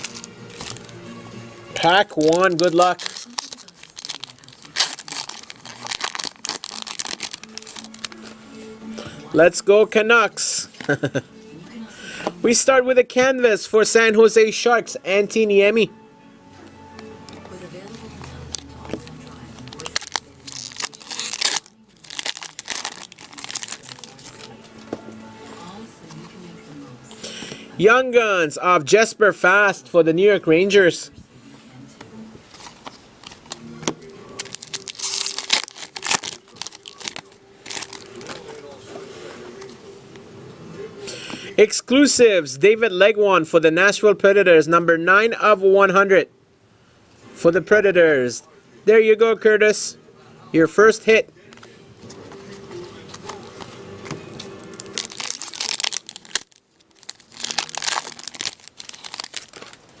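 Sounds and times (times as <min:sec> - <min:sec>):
cards being handled: 0:00.0 - 0:01.0, 0:51.5 - 0:56.5
foil wrappers crinkling and tearing: 0:00.0 - 0:01.0, 0:01.8 - 0:08.4, 0:18.5 - 0:24.6, 0:34.3 - 0:38.8, 0:54.3 - 1:00.0.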